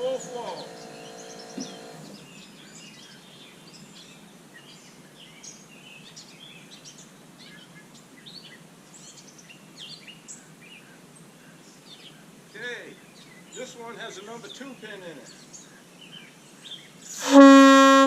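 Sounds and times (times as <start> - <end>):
songbirds chirping: 0.0 - 18.0
steady background hiss: 0.0 - 18.0.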